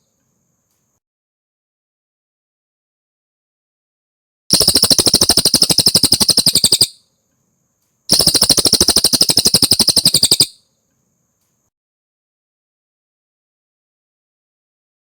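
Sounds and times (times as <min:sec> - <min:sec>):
bird singing rapid high notes: 0:04.5 - 0:07.0, 0:08.1 - 0:10.5.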